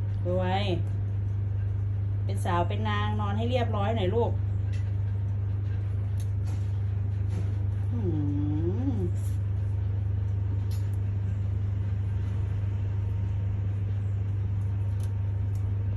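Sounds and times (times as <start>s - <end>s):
steady low hum: 0.0s - 15.9s
person humming: 7.9s - 9.2s.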